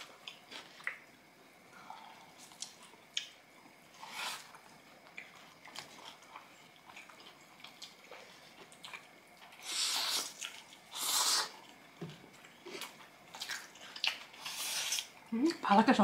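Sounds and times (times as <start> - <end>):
wet chewing: 4.0 - 15.2.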